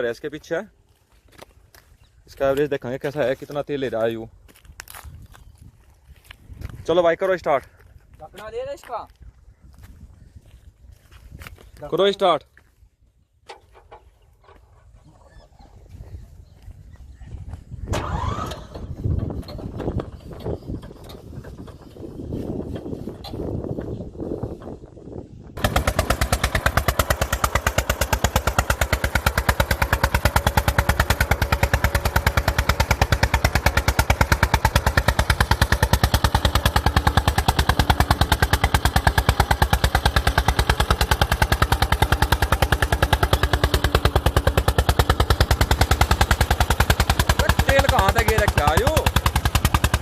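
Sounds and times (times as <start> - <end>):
tractor diesel engine knocking: 18.0 - 24.0, 25.6 - 50.0.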